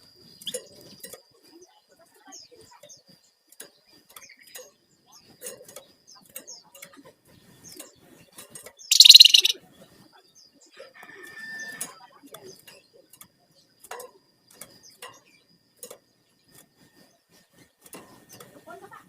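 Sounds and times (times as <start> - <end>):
songbird chirping: 8.8 - 10.8
harsh rattling bird call: 8.9 - 9.6
whistled bird note: 8.9 - 9.6.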